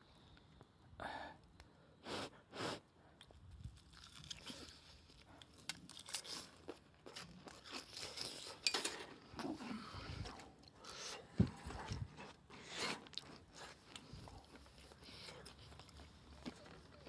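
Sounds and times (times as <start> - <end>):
crackly chewing: 3.0 - 17.0
crunchy bites into fried food: 3.7 - 8.5.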